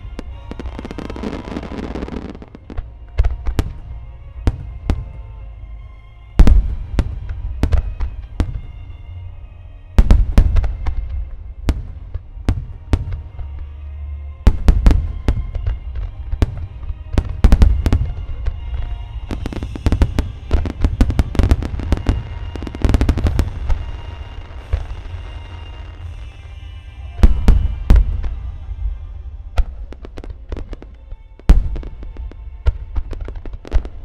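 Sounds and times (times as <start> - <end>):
fireworks shells bursting: 14.5 - 28.6.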